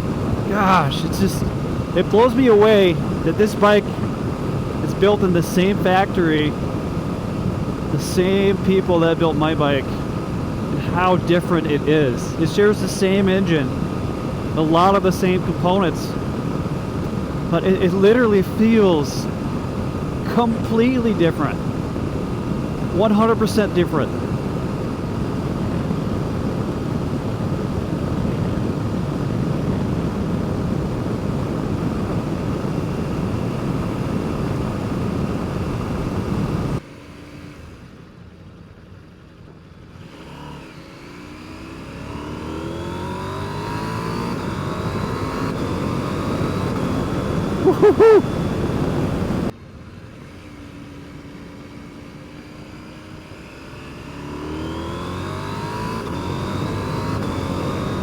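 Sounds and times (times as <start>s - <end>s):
wind rush: 0.0s - 17.9s, 24.1s - 36.8s, 43.8s - 49.5s
motorcycle engine accelerating: 0.0s - 37.9s, 39.9s - 49.5s, 50.1s - 58.0s.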